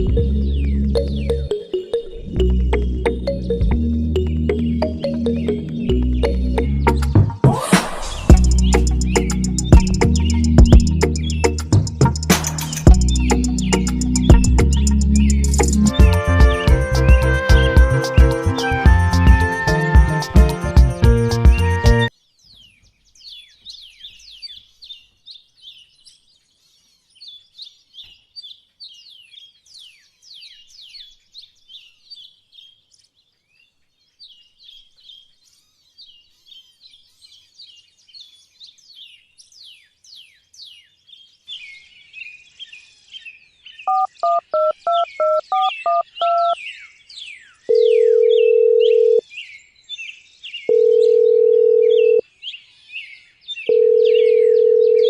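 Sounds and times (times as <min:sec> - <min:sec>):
small birds chirping: 0:00.0 - 0:18.4, 0:21.5 - 0:55.0
phone keypad beeps: 0:43.9 - 0:46.6, 0:47.7 - 0:49.2
phone ringback tone: 0:43.9 - 0:46.6, 0:47.7 - 0:49.2, 0:50.7 - 0:52.2, 0:53.7 - 0:55.0.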